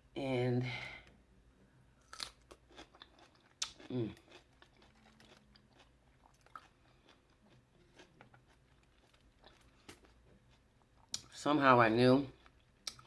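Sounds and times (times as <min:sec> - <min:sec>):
chewing crunchy cucumber: 0:02.1 - 0:11.4.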